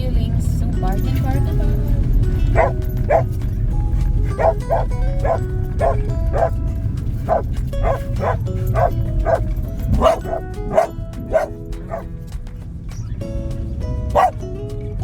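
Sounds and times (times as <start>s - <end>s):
background music: 0.0s - 15.0s
car and road rumble: 0.0s - 15.0s
dog barking: 2.5s - 3.4s, 4.2s - 6.6s, 7.2s - 12.1s, 14.1s - 14.4s.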